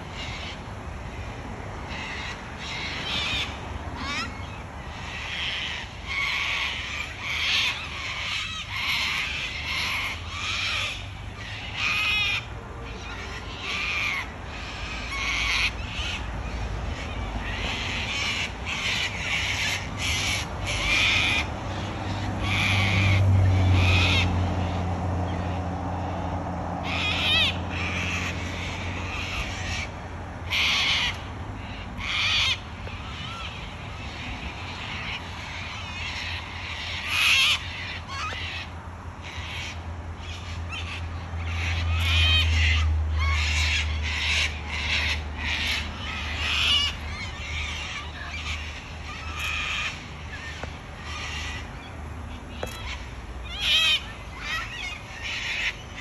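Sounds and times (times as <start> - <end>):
cockatoos screeching: 26.8 - 56.0.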